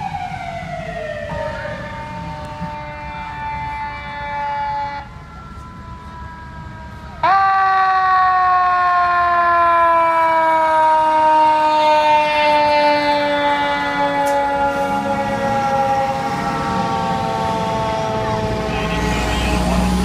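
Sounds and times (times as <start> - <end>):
fire truck air horn blasts: 11.1 - 20.0.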